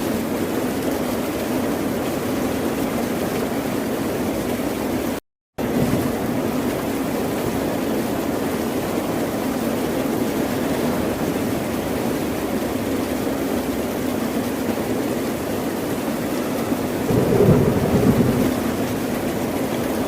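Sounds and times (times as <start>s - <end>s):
ocean surf: 16.6s - 20.0s.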